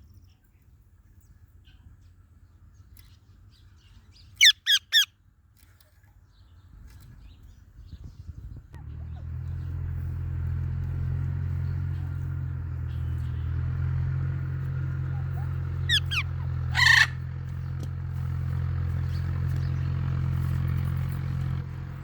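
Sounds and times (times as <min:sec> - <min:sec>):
parrot squawk: 0:04.4 - 0:05.1, 0:15.2 - 0:17.3
low mechanical hum: 0:05.8 - 0:22.0
parrot whistled chirps: 0:15.9 - 0:17.1.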